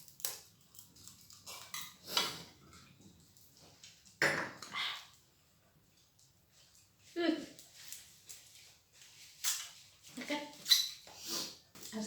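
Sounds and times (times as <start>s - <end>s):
dishes and cutlery clattering: 1.4s - 2.6s.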